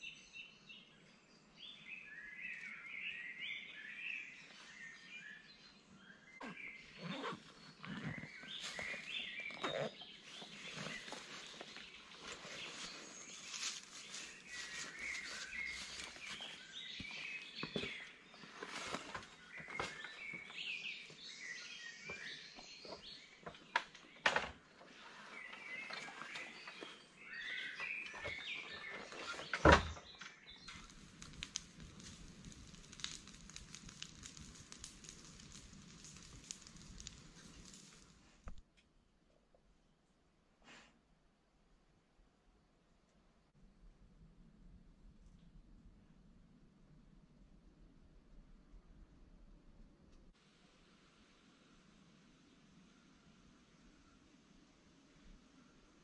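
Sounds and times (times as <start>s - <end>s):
small birds chirping: 0.0s - 38.2s
steady hiss: 30.7s - 38.6s, 50.4s - 56.0s.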